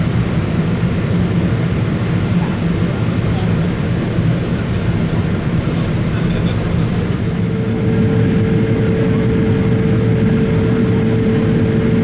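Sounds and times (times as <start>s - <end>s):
airliner cabin drone: 0.0s - 12.0s.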